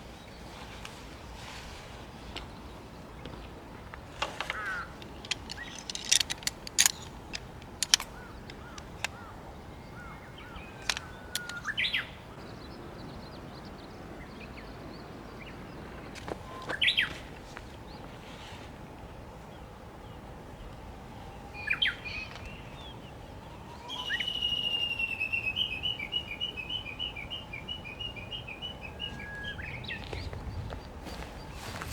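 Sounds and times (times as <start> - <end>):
soft steady background noise: 0.0 - 31.9
wild birds calling and chirping: 3.3 - 17.2.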